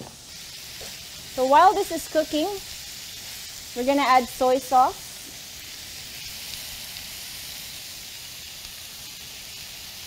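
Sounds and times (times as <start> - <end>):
vegetables sizzling in a frying pan: 0.0 - 10.0.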